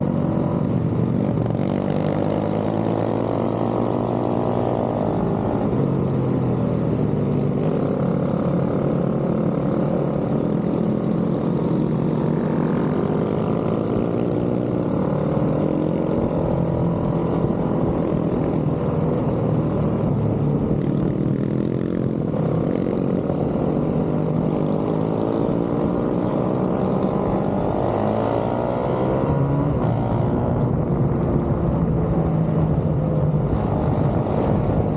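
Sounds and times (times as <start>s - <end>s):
pit bike engines revving: 16.4s - 17.1s, 26.8s - 30.4s, 32.1s - 34.9s.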